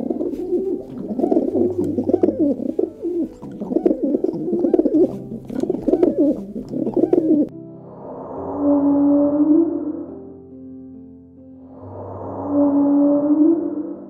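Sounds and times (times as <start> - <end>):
doves cooing: 0.0 - 7.5.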